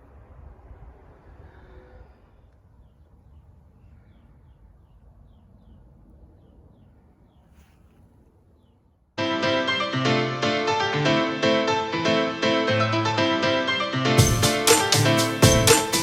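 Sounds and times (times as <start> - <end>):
faint outdoor ambience: 0.0 - 11.0
bird chirping: 2.3 - 9.0
loud music: 9.2 - 16.0.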